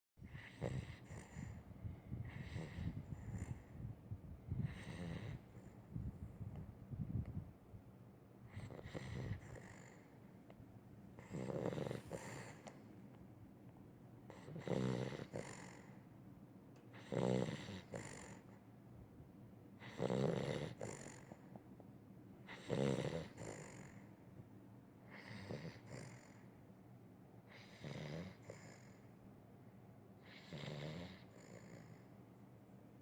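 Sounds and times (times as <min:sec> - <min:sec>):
dog snoring: 0:00.2 - 0:01.6, 0:02.2 - 0:03.8, 0:04.6 - 0:05.9, 0:08.5 - 0:10.2, 0:11.2 - 0:12.8, 0:14.3 - 0:16.0, 0:16.9 - 0:18.6, 0:19.8 - 0:21.6, 0:22.4 - 0:24.1, 0:25.1 - 0:26.5, 0:27.5 - 0:29.1, 0:30.2 - 0:32.1.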